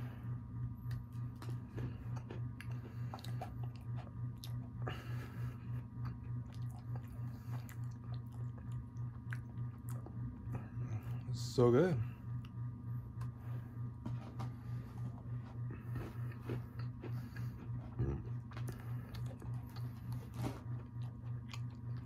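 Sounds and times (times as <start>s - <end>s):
pulsing low hum: 0.0s - 22.0s
person chewing a cookie: 0.6s - 11.3s, 12.3s - 22.0s.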